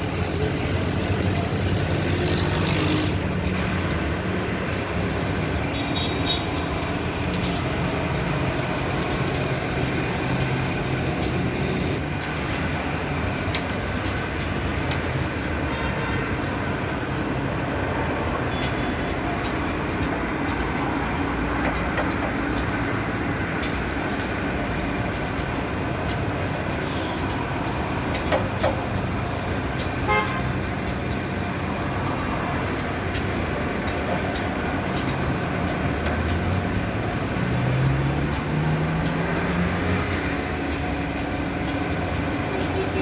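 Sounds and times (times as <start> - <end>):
street traffic: 0.0 - 43.0
car horn toot: 30.1 - 30.5.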